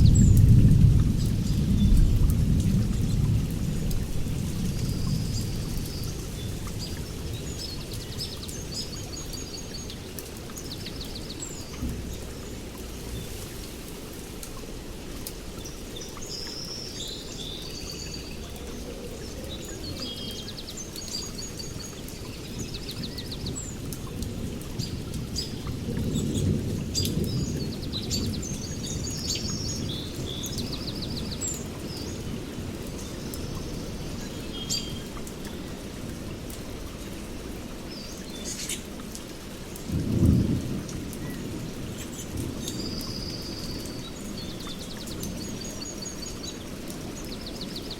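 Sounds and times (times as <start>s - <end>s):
distant thunder rumble: 0.0s - 8.8s, 11.6s - 14.2s, 21.2s - 31.4s, 39.8s - 44.1s
songbirds chirping and trilling: 0.0s - 47.9s
steady rain: 0.0s - 47.9s.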